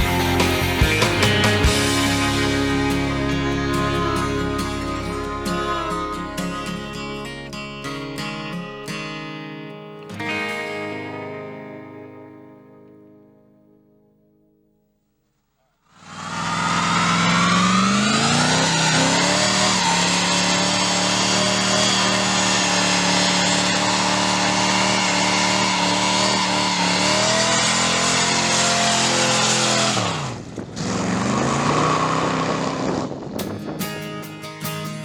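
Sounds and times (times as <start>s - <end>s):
pickup engine revving: 0.0s - 9.3s, 16.0s - 33.6s.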